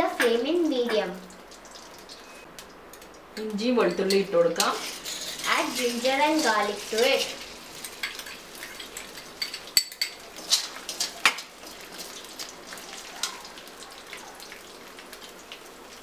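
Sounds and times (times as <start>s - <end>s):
garlic sizzling in hot oil: 0.2s - 2.5s, 4.1s - 16.0s
metal spoon clinking on bowl: 7.8s - 10.2s.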